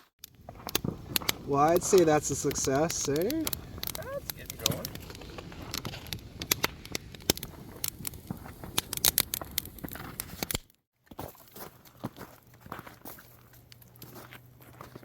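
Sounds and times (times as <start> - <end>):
campfire crackling and popping: 0.0 - 10.7, 11.6 - 15.0
quiet scattered clicks: 0.2 - 10.0.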